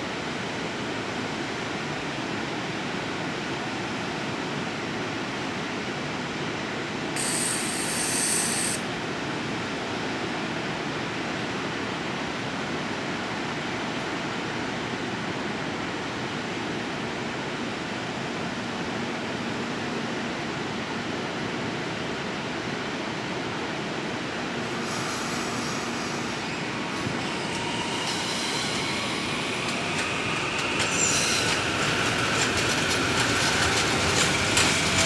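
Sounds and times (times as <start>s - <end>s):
high-pitched hiss: 7.2s - 8.9s, 24.6s - 32.9s
train rolling rumble: 24.2s - 35.0s.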